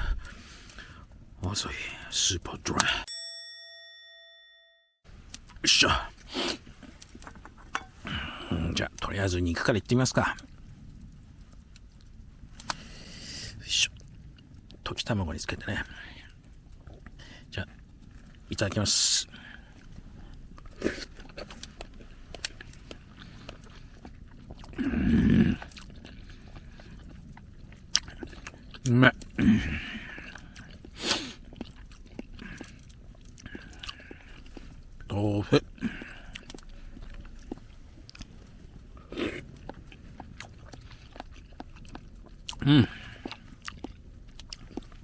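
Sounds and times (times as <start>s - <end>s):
person chewing: 19.3s - 45.0s
wet mouth clicks: 36.0s - 45.0s.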